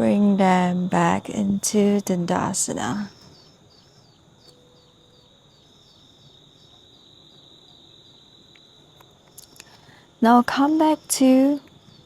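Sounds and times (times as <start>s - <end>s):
high-pitched insect trill: 0.0s - 12.0s
insect chirps: 0.0s - 12.0s.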